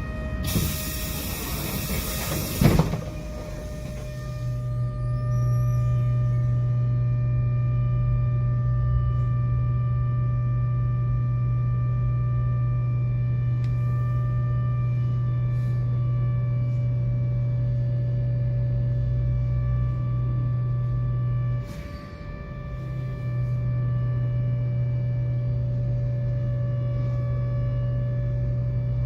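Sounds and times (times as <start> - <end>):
tram electrical hum: 0.0 - 29.0
high whining tones: 0.3 - 4.7.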